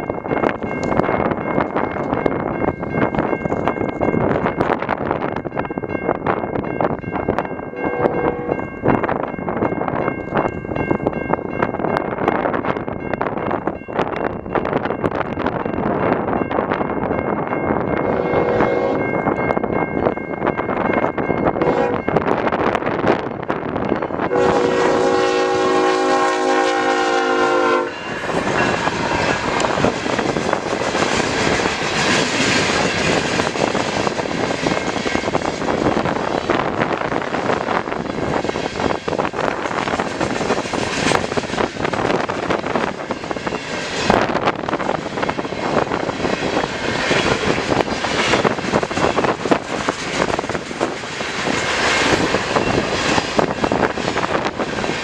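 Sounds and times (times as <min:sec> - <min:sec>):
freight train rolling past: 0:00.0 - 0:55.0
diesel locomotive horn: 0:07.8 - 0:08.6, 0:18.0 - 0:19.1, 0:21.6 - 0:22.1, 0:24.3 - 0:28.2.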